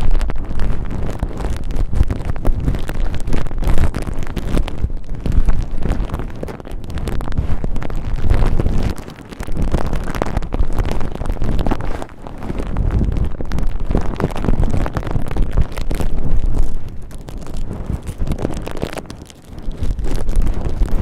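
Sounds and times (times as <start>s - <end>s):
cotton ball rubbing on microphone: 0.0s - 21.0s.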